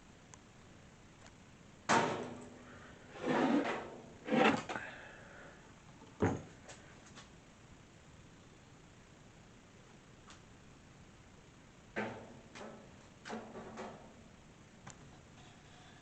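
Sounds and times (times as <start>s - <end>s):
wooden boards sliding scrapes: 3.1s - 4.8s.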